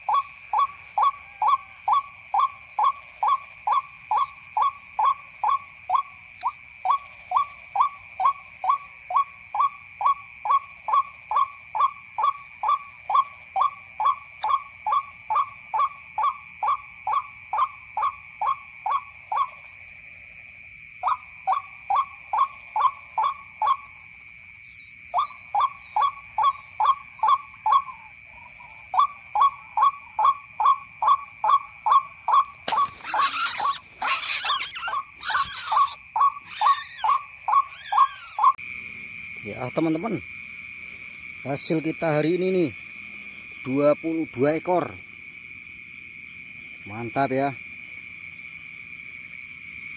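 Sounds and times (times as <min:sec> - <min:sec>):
waterhen kwak calls: 0:25.2 - 0:38.6.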